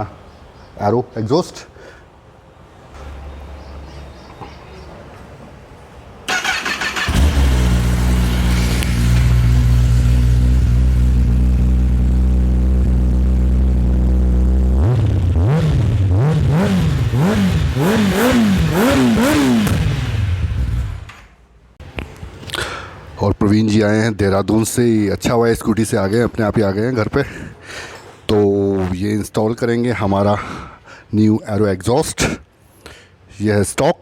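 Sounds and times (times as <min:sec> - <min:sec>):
motorcycle starter cranking: 0:06.3 - 0:09.7
motorcycle throttle blips: 0:06.4 - 0:21.3
motorcycle engine idling: 0:07.0 - 0:14.7.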